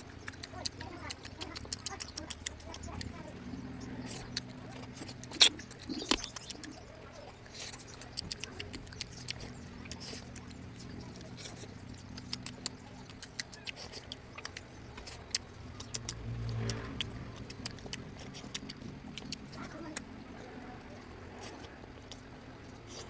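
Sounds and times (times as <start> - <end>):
faint low hum: 0.0 - 23.0
wet chewing and lip-smacking: 0.0 - 23.0.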